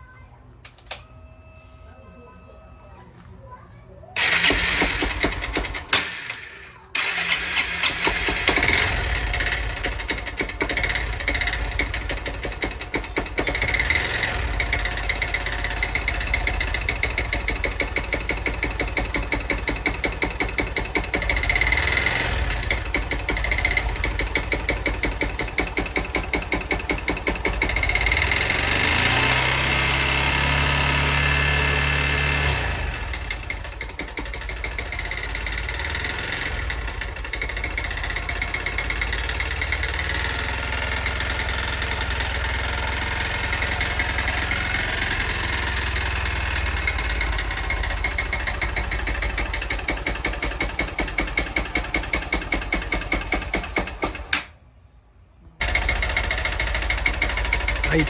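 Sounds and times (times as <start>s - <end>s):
motorcycle engine knocking: 4.2s - 6.2s, 7.0s - 54.5s, 55.6s - 58.0s.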